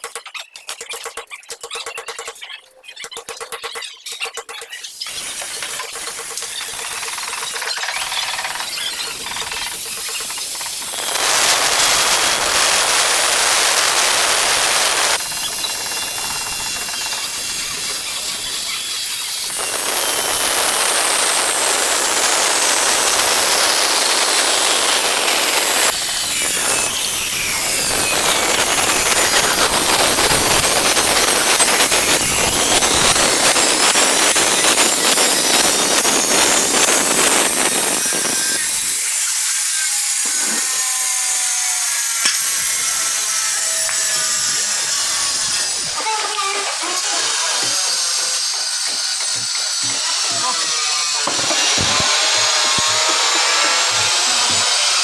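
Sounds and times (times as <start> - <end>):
angle grinder cutting tile: 3.8 - 55.0.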